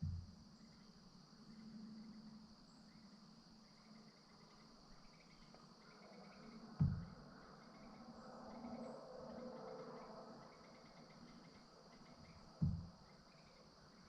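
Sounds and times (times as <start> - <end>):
low thump: 0.0 - 0.4, 6.8 - 7.2, 12.6 - 13.0
faint low hum: 0.0 - 14.0
insect chorus: 0.0 - 14.0.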